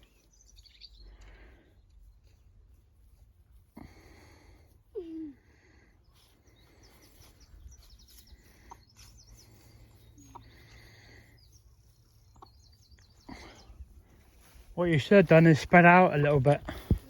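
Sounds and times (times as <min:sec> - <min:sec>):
birds chirping and trilling: 0:00.0 - 0:02.4, 0:05.9 - 0:17.0
faint outdoor ambience: 0:00.0 - 0:17.0.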